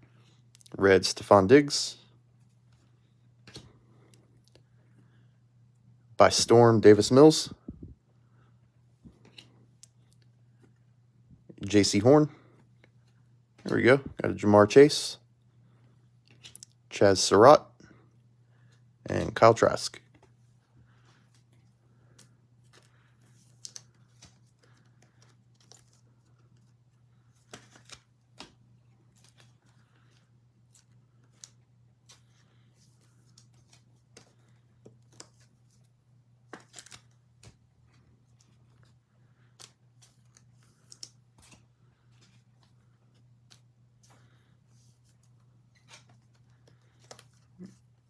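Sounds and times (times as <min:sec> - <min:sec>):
trading cards clicking and rustling: 0:03.4 - 0:04.6, 0:21.2 - 0:44.4, 0:45.0 - 0:48.0.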